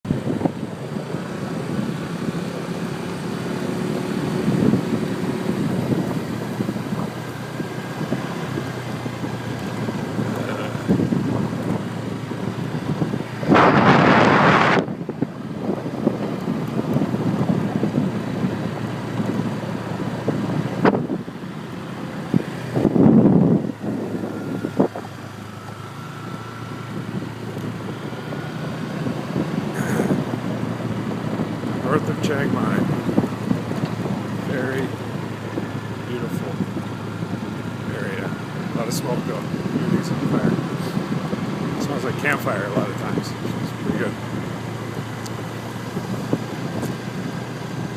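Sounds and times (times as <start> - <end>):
wind noise on microphone: 0.1 - 2.9, 3.7 - 21.4, 22.2 - 47.9
scooter engine hum: 0.1 - 47.9
bursts of rushing noise: 13.4 - 14.9.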